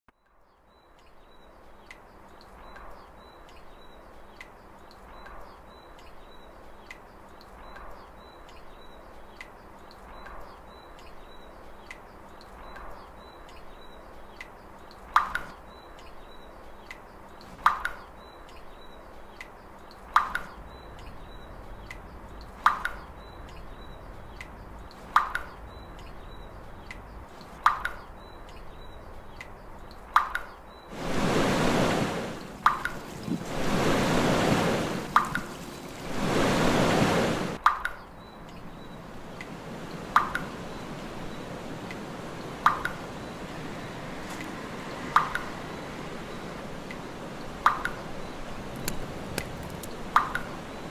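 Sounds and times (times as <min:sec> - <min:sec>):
light high ticks: 0:00.9 - 0:06.2, 0:06.8 - 0:16.2, 0:16.8 - 0:30.6, 0:39.4 - 0:41.1, 0:41.8 - 0:45.7, 0:47.6 - 0:50.6.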